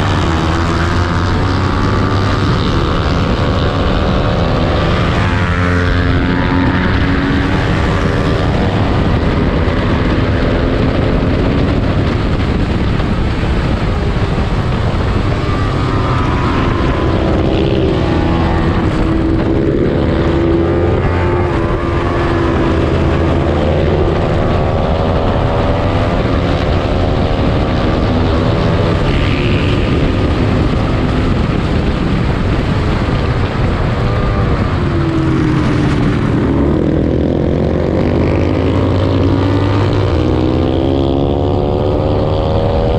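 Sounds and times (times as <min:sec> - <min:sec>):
race motorcycle engine revving: 0:00.0 - 0:42.9.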